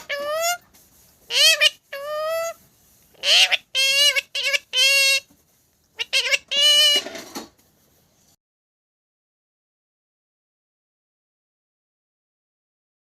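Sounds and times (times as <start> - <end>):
parrot calling: 0.0 - 0.6, 1.3 - 5.3, 6.0 - 7.2.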